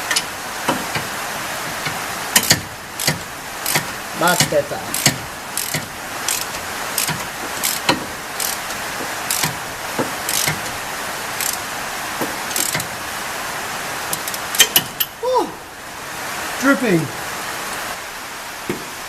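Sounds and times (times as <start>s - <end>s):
ratchet clicking: 0.0s - 1.1s, 1.7s - 11.7s, 12.5s - 12.9s, 14.1s - 15.1s
steady hiss: 0.0s - 19.0s.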